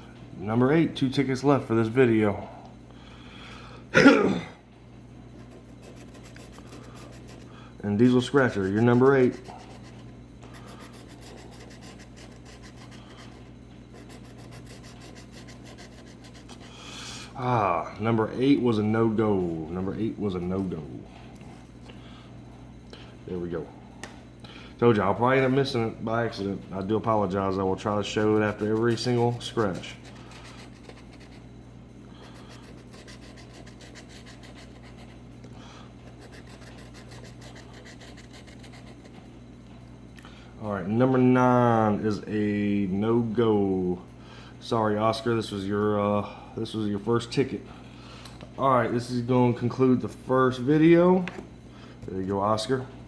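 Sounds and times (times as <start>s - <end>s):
steady low hum: 0.0s - 53.0s
scratching lottery ticket: 5.4s - 16.8s, 27.8s - 31.5s, 32.2s - 35.3s, 36.0s - 39.3s.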